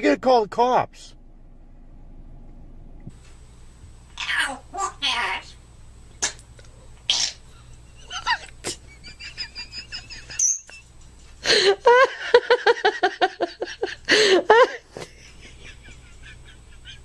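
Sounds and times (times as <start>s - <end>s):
parrot squawking and screeching: 4.2s - 5.6s, 10.4s - 10.8s
parrot chirps and whistles: 10.4s - 10.8s.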